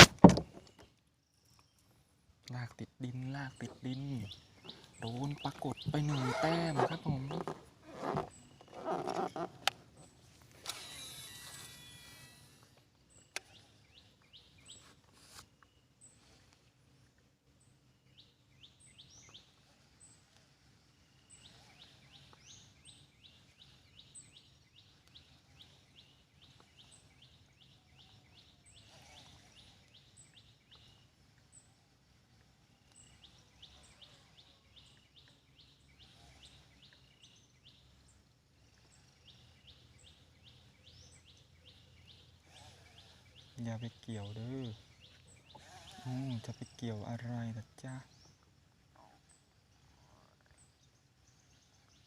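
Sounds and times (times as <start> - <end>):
bird chirping rapidly: 3.0 - 12.6.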